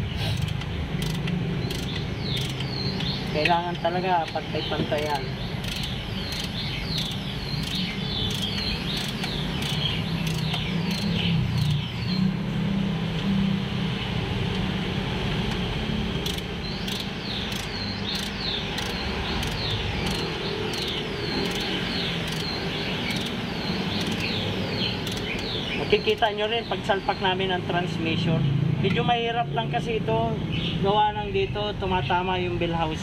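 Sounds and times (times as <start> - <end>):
bird chirping: 0.0 - 12.4, 16.2 - 29.1.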